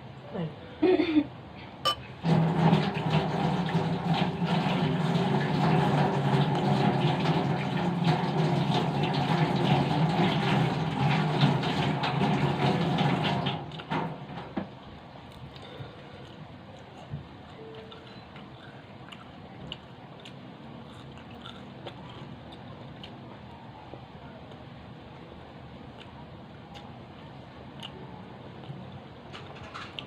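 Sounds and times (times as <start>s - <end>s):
washing machine motor hum: 0.0s - 30.0s
water rushing into washing machine: 2.2s - 14.7s.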